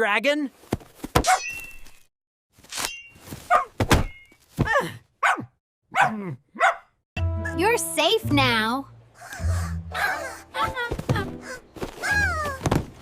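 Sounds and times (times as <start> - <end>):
sharp thunks: 3.4 - 4.8
small dog barking: 5.2 - 6.9.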